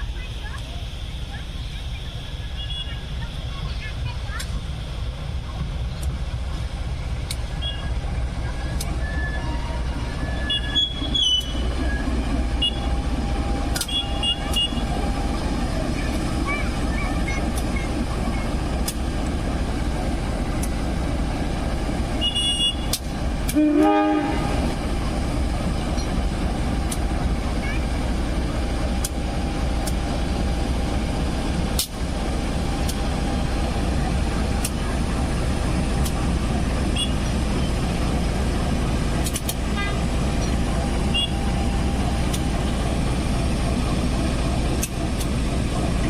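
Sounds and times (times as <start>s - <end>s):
train rumbling on track: 0.0s - 46.0s
faint sharp clicks: 29.0s - 29.2s, 44.8s - 45.3s.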